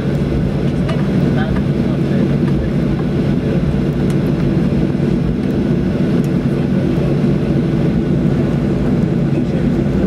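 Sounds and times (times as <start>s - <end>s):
jet engine cabin drone: 0.0s - 10.0s.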